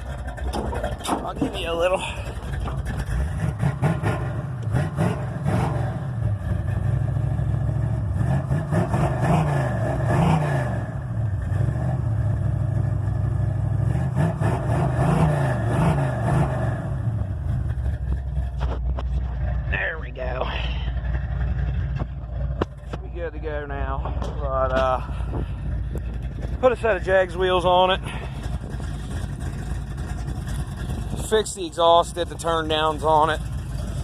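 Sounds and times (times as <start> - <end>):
car engine running rough: 0.0 - 34.0
engine throttle blips: 0.0 - 34.0.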